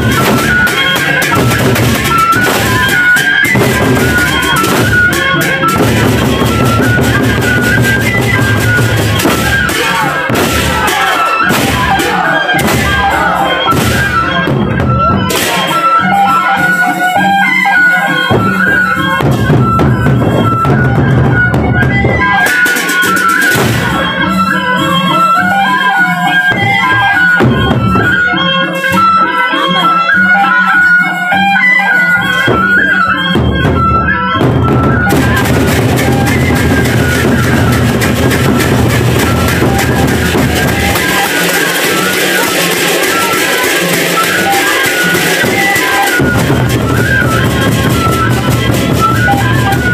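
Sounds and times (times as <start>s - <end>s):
barrel drums beating: 0.0s - 15.7s, 33.3s - 49.9s
high wavering melody: 0.0s - 49.9s
pulsing percussion rhythm: 0.0s - 49.9s.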